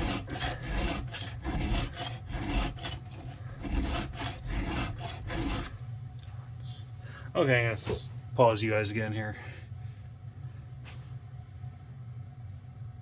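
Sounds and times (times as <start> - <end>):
file rasping on chainsaw chain: 0.0 - 5.7.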